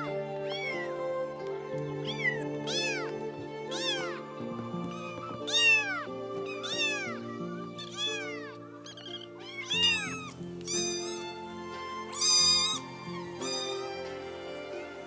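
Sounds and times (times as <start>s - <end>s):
cat meowing: 0.0s - 1.0s, 2.0s - 3.1s, 3.7s - 4.2s, 4.8s - 14.0s
background music: 0.0s - 15.0s.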